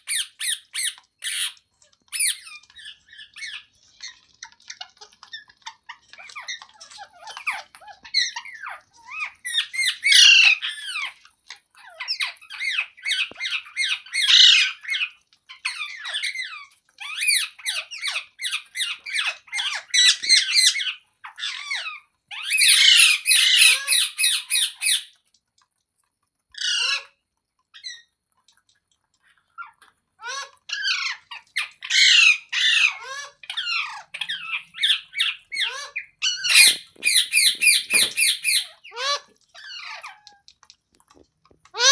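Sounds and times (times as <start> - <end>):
parrot squawking: 0.0 - 11.2, 11.8 - 25.1, 26.6 - 27.2, 29.5 - 40.5.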